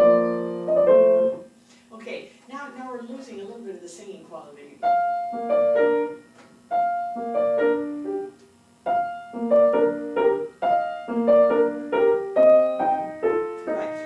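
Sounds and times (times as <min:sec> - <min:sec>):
piano playing: 0:00.0 - 0:01.5, 0:04.8 - 0:14.0.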